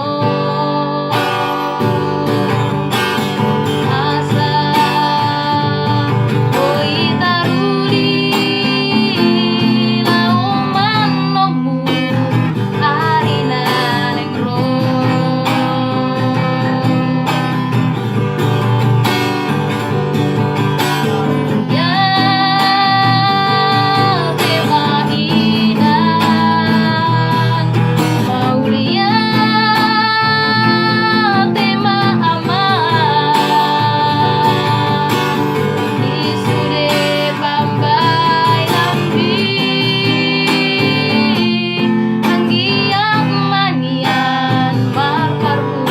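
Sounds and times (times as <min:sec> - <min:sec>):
acoustic guitar: 0:00.0 - 0:45.9
woman singing high notes: 0:21.2 - 0:45.9.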